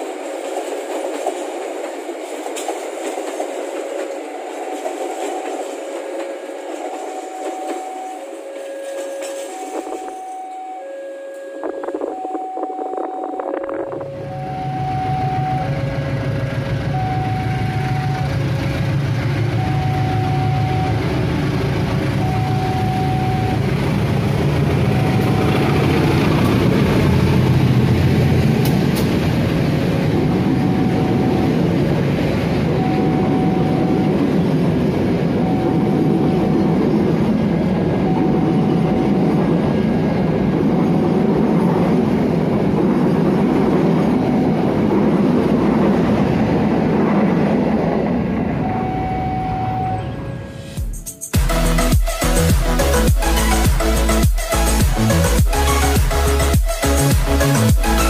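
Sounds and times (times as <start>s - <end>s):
train wheels clacking on rails: 0.0s - 10.5s, 18.1s - 48.3s
train engine rumbling: 0.0s - 58.0s
level crossing alarm: 4.6s - 18.7s, 19.4s - 26.8s, 30.1s - 31.8s, 32.6s - 34.4s, 35.0s - 36.9s, 37.7s - 40.0s, 48.6s - 50.8s.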